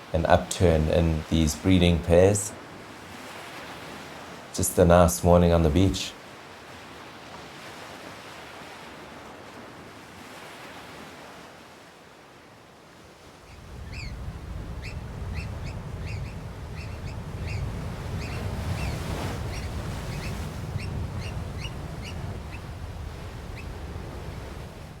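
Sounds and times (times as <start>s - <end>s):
surf: 0.0s - 9.3s, 13.4s - 25.0s
oystercatchers piping calls: 13.5s - 22.7s.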